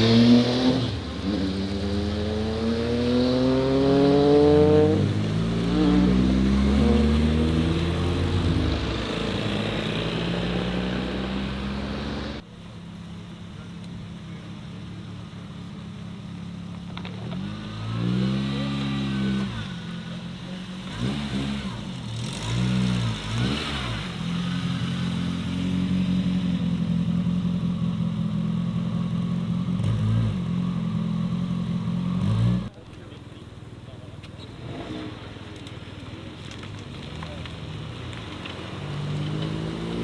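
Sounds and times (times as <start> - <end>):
car engine revving: 0.0 - 12.4, 16.9 - 32.8, 36.5 - 40.0.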